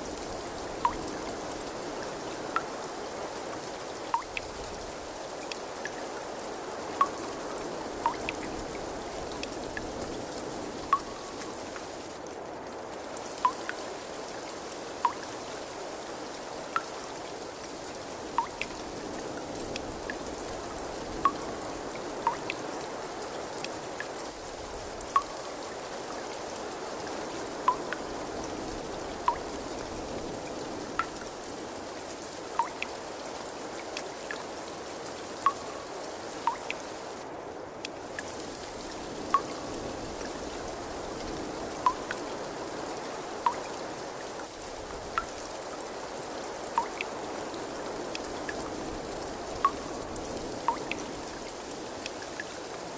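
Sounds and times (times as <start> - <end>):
trickle of running water: 0.0 - 52.9
water drops plinking: 0.8 - 1.2, 4.1 - 4.4, 7.0 - 7.2, 8.0 - 8.4, 10.9 - 11.5, 13.4 - 13.8, 15.0 - 15.3, 18.4 - 18.7, 22.2 - 22.6, 25.2 - 25.4, 27.7 - 28.0, 31.0 - 31.2, 32.6 - 32.9, 35.4 - 35.8, 36.5 - 36.8, 39.3 - 39.6, 41.8 - 42.2, 43.4 - 43.7, 46.8 - 47.1, 50.6 - 51.0.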